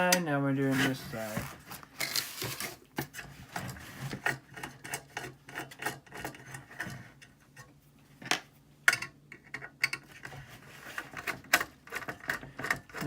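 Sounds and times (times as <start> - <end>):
screwdriver clicking and scraping: 3.6 - 7.7, 8.9 - 13.0.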